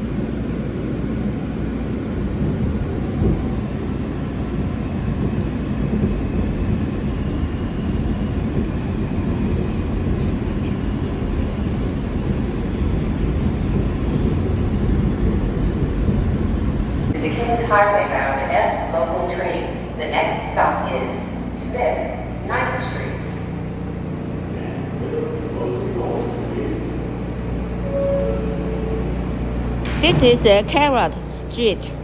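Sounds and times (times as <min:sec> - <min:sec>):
subway wheels rumbling on track: 0:00.0 - 0:32.0
faint high whine: 0:17.2 - 0:31.9.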